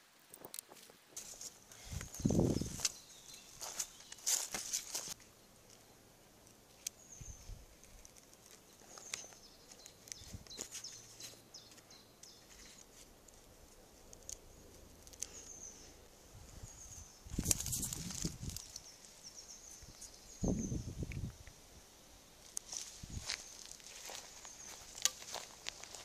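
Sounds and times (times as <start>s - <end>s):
birds chirping: 1.6s - 26.0s.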